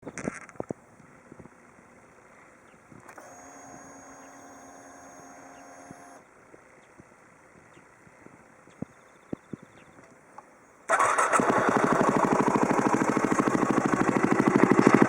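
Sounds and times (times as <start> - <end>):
fuel pump whine: 3.1 - 6.3, 10.9 - 15.0.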